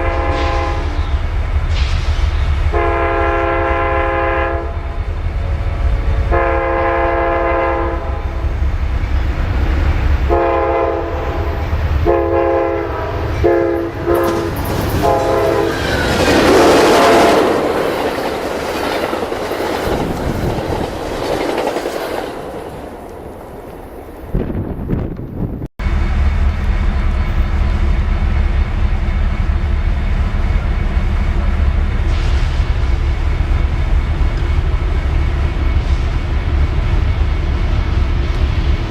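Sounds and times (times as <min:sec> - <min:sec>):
locomotive air horn blasts: 0:00.0 - 0:01.0, 0:02.7 - 0:05.0, 0:06.0 - 0:08.4, 0:10.3 - 0:15.8
train wheels clattering: 0:08.0 - 0:24.3.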